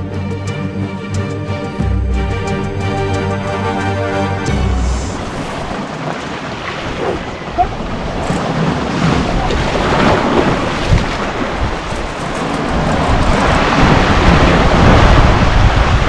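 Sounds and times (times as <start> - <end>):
music track: 0.0 - 5.9
sea surf on rocks: 4.0 - 16.0
wind buffeting microphone: 5.1 - 16.0.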